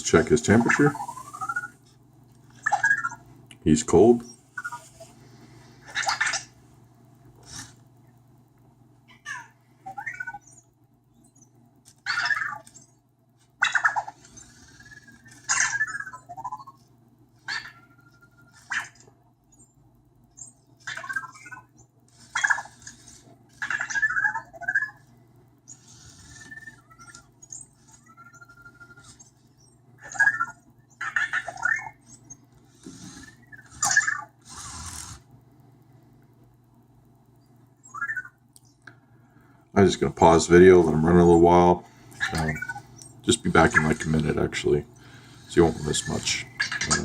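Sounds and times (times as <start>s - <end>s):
faint low hum: 0.0s - 47.0s
robot electronic chirps and beeps: 0.2s - 1.8s, 17.6s - 18.7s, 25.7s - 32.4s, 37.8s - 38.4s.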